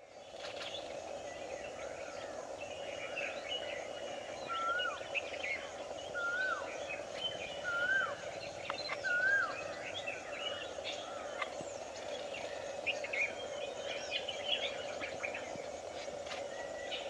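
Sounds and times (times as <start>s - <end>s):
birds chirping: 0.0s - 17.0s
steady background hiss: 0.0s - 17.0s
bird whistled call: 4.4s - 11.6s.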